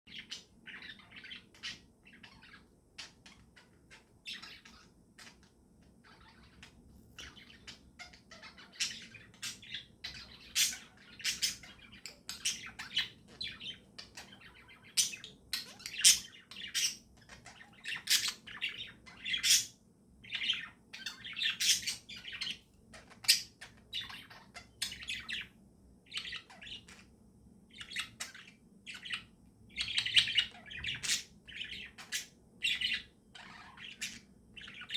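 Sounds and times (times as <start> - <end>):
budgies chirping: 0.1 - 34.9.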